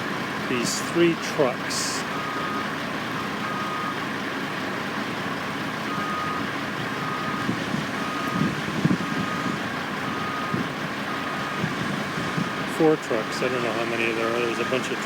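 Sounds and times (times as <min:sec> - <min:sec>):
site machinery noise: 0:00.0 - 0:15.0
reversing alarm beeping: 0:02.0 - 0:04.1, 0:05.9 - 0:15.0.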